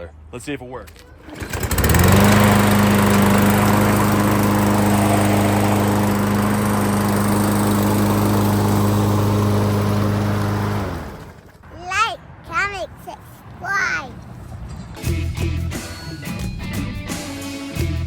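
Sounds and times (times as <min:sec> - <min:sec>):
lawn mower engine running: 0:01.2 - 0:11.7.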